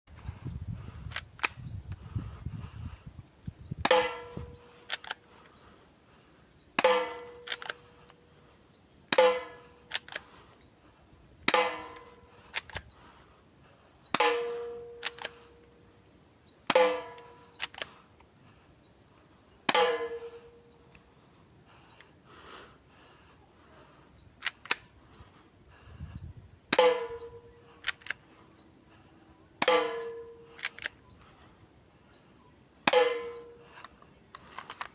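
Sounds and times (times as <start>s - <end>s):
airsoft pistol shots: 3.9s - 5.1s, 6.8s - 7.8s, 9.1s - 10.2s, 11.5s - 12.8s, 14.2s - 15.5s, 16.7s - 17.8s, 19.7s - 20.5s, 26.8s - 27.8s, 29.6s - 30.8s, 32.9s - 33.6s.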